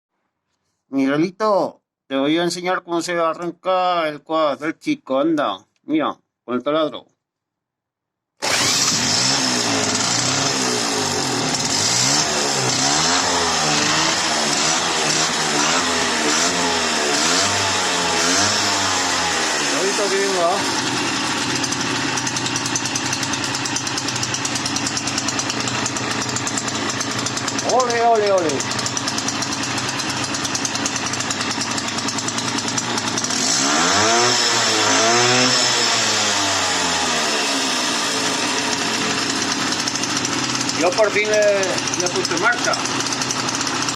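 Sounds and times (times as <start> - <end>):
electric drill motor whine: 8.4 - 12.0
engine turning over: 8.4 - 43.9.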